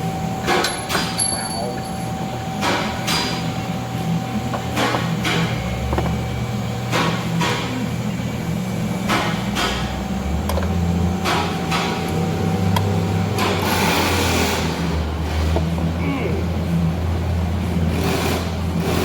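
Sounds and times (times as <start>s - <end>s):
steady low hum: 14.3s - 18.9s.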